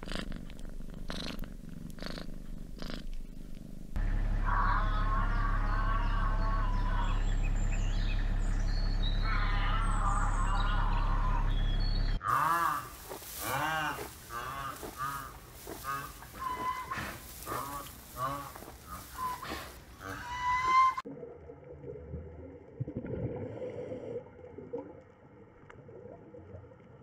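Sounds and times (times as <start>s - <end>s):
steady low hum: 0.0s - 20.4s
birds chirping and warbling: 2.0s - 21.0s
honking animal calls: 4.1s - 21.0s.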